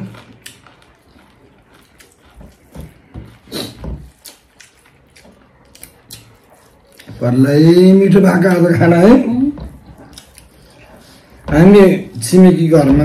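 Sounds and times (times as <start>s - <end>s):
chewing and lip smacks: 0.0s - 7.6s, 9.6s - 11.5s.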